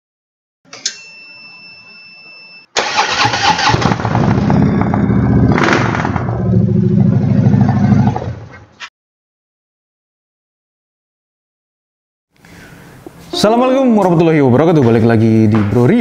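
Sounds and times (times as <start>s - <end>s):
motorcycle engine starting and idling: 2.8s - 8.4s.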